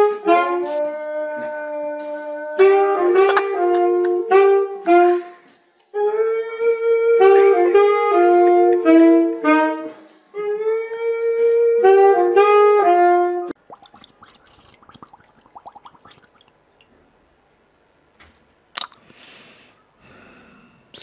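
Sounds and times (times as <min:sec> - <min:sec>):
saxophone melody: 0:00.0 - 0:05.2, 0:06.0 - 0:13.6.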